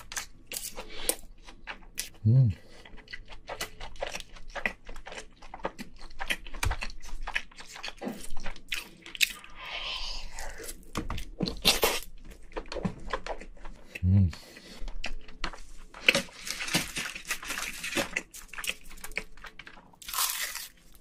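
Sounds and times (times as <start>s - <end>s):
person chewing with mouth clicks: 0.0s - 10.9s, 11.5s - 16.5s.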